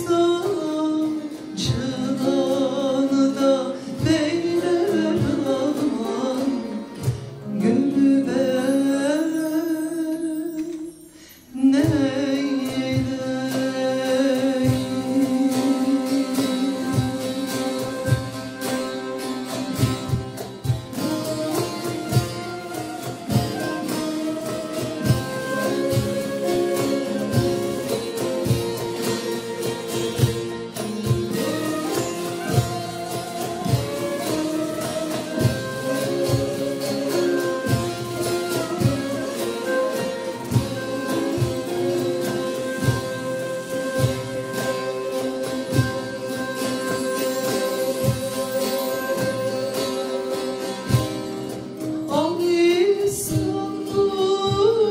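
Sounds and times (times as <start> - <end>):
plucked string instruments: 0.0 - 54.9
drum steady beat: 12.9 - 52.3.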